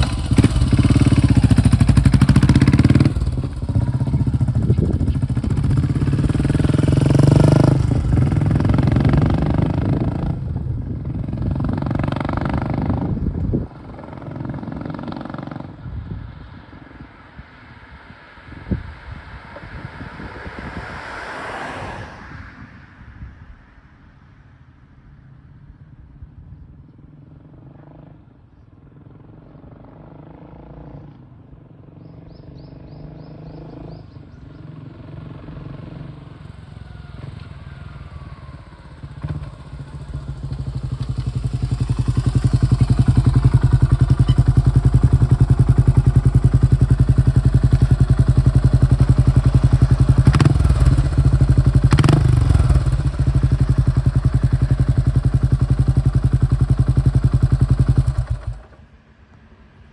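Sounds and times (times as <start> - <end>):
motorcycle engine exhaust beat: 0.0 - 13.4, 39.4 - 58.6
motorcycle engine revving: 0.0 - 15.9, 37.7 - 58.8.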